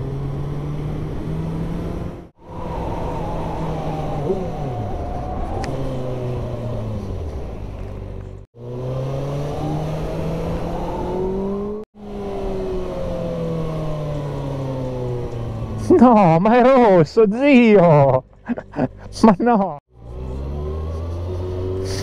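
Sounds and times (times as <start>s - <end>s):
wind rushing: 2.1s - 8.2s.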